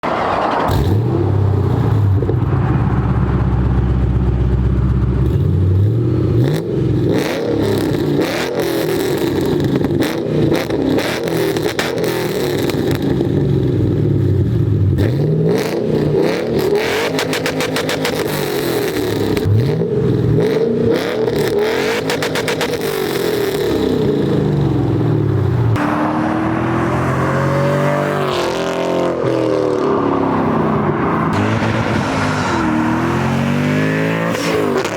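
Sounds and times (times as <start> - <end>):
car engine revving: 0.0 - 34.9
exhaust crackle: 0.1 - 11.4.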